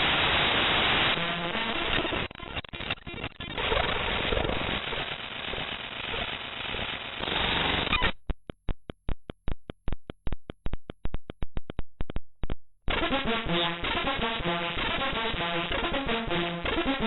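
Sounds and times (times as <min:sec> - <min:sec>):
harsh static: 0:00.0 - 0:08.2, 0:12.9 - 0:17.0.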